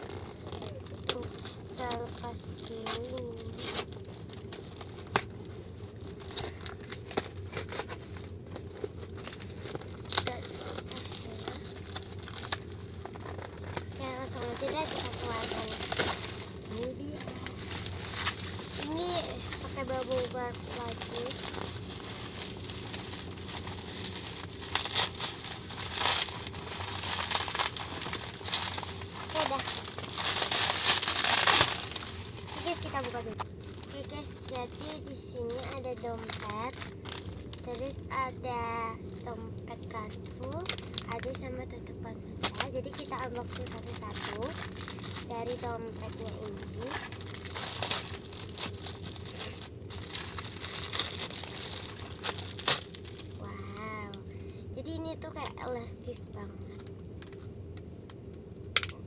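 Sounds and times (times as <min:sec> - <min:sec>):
bubble wrap crinkling: 0:00.0 - 0:41.8, 0:42.4 - 0:54.2.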